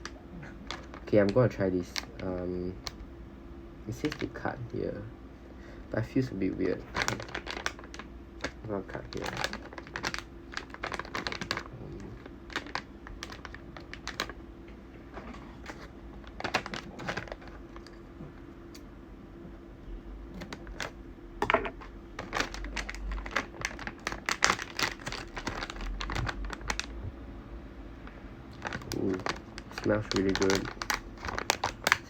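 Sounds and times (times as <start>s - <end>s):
plastic snack packet crinkling: 0.0s - 3.0s, 3.9s - 4.5s, 6.1s - 14.4s, 15.2s - 18.0s, 20.3s - 27.0s, 28.5s - 32.0s.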